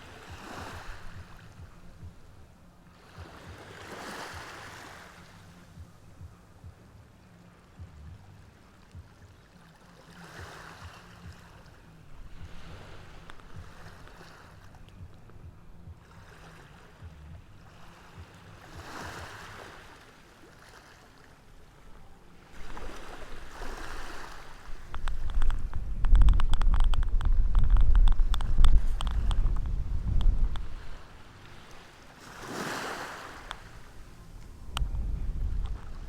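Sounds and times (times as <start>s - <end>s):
ocean waves washing in: 9.5s - 14.8s, 17.6s - 36.0s
loud low rumble: 25.6s - 30.8s, 34.5s - 36.0s.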